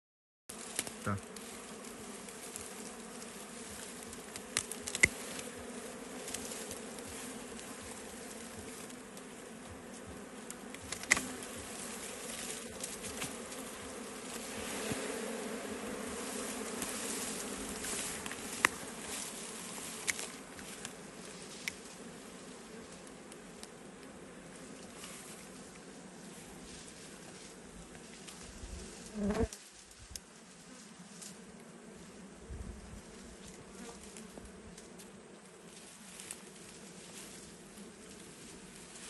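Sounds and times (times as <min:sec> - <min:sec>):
bees buzzing: 0:00.5 - 0:29.6.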